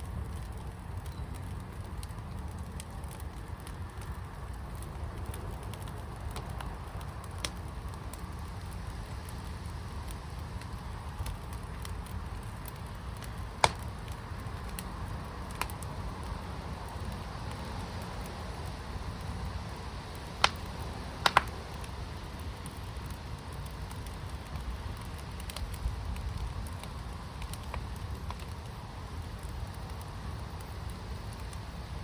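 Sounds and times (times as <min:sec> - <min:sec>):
low fire rumble: 0:00.0 - 0:32.0
wood fire crackling: 0:00.0 - 0:32.0
loud sharp pop: 0:13.6 - 0:13.9.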